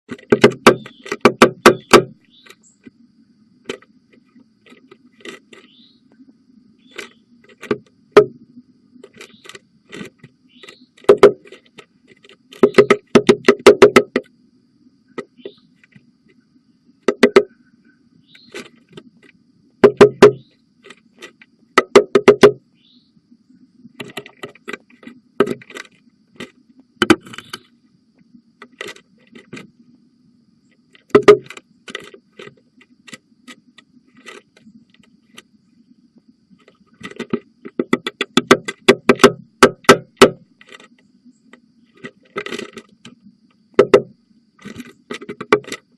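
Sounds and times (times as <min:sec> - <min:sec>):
woodpecker tapping on wood: 0:00.1 - 0:02.9, 0:06.8 - 0:08.4, 0:09.0 - 0:14.3, 0:17.0 - 0:17.6, 0:18.4 - 0:22.6, 0:24.0 - 0:27.7, 0:31.0 - 0:35.5, 0:36.6 - 0:41.0, 0:41.9 - 0:45.9
faint steady hum: 0:00.1 - 0:45.9.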